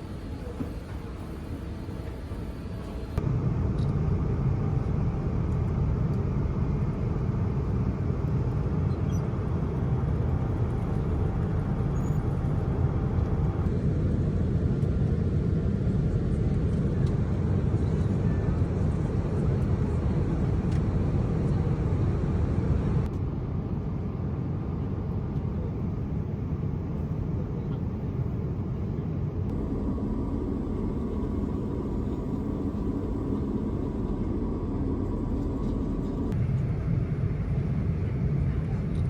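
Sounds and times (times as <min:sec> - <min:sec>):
vehicle interior rumble: 0:02.8 - 0:13.8, 0:27.0 - 0:39.0.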